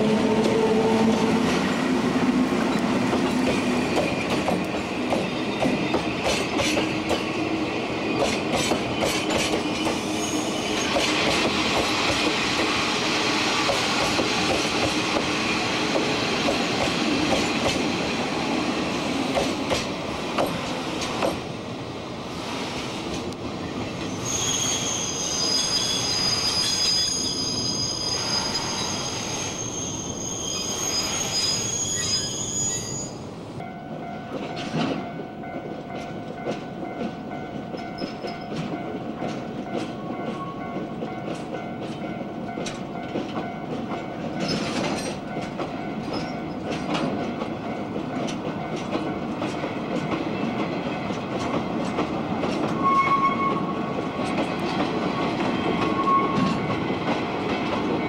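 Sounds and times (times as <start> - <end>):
train wheels squealing: 3.9 - 7.3, 8.0 - 12.1, 24.0 - 33.2, 44.4 - 45.2, 46.0 - 46.7, 52.6 - 53.8, 55.5 - 56.8.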